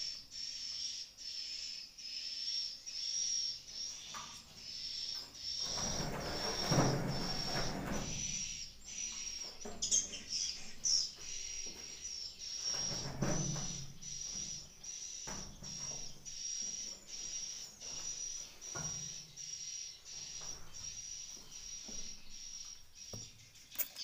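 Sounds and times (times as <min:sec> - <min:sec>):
rustling and scraping: 0:05.6 - 0:08.4.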